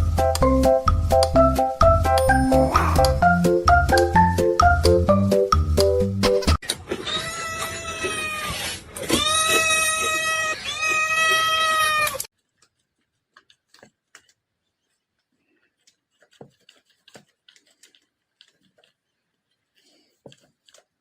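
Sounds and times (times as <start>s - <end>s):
cat yowling: 2.6s - 3.2s.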